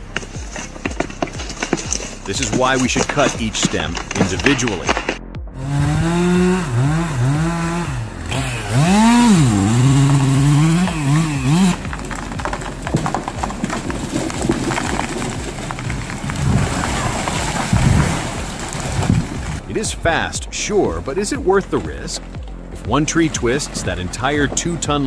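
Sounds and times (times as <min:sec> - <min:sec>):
sharp cracks and rustling: 0:00.0 - 0:05.2, 0:08.7 - 0:19.6
chainsaw bogging and revving: 0:00.0 - 0:19.7.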